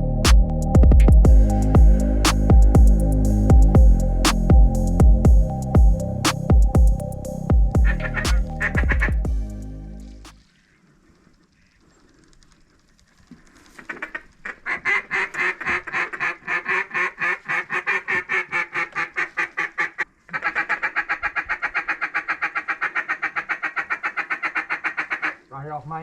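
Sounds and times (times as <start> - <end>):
duck call quacks: 7.8 - 9.2, 13.8 - 25.5.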